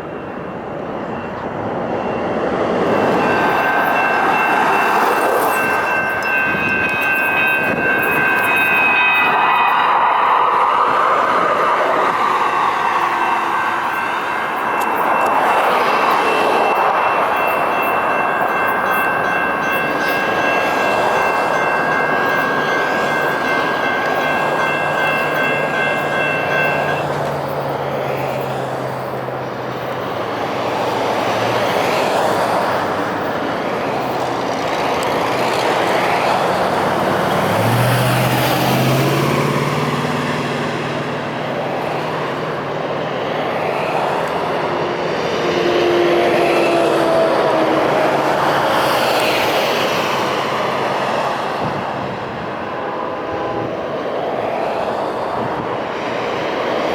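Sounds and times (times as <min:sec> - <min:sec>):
steady high-pitched tone: 0:00.0 - 0:29.3
light rail train rumbling past: 0:00.0 - 0:56.9.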